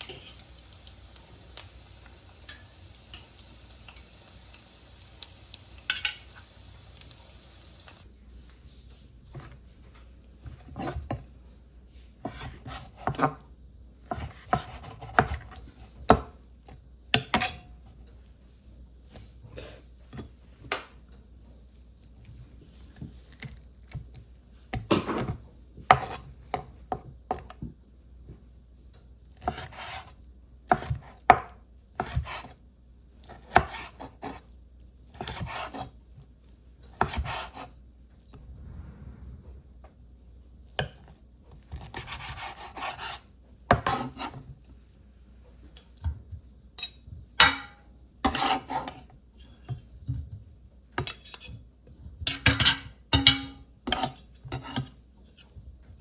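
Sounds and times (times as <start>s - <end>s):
knife chopping on cutting board: 12.2s - 13.4s, 14.0s - 16.4s, 24.8s - 27.5s, 29.4s - 30.1s, 30.7s - 32.6s, 33.3s - 34.4s, 35.2s - 35.9s, 36.9s - 37.7s, 41.8s - 44.4s.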